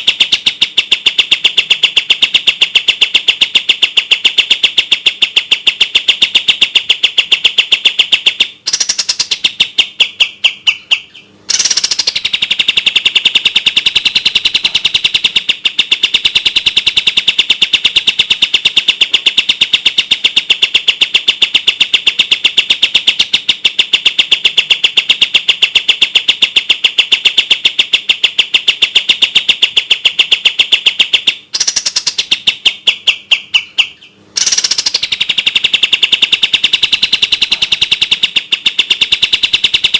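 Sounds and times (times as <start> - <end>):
bird rapid trill: 0.0 - 39.9.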